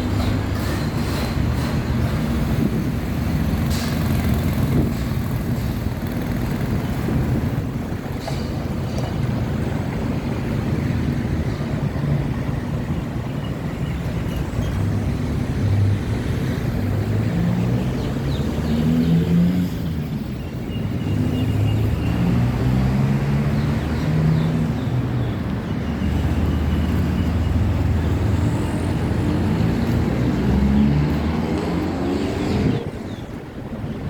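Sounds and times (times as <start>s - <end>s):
vehicle engines moving off: 0.0s - 34.0s.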